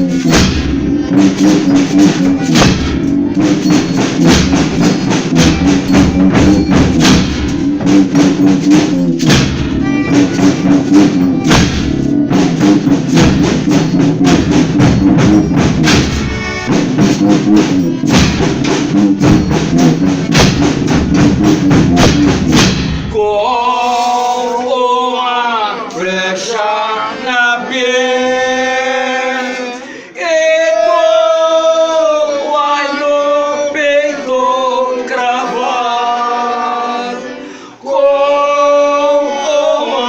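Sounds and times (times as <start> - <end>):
drums and tambourines beat: 0.0 - 24.7
held instrument notes: 0.0 - 24.9.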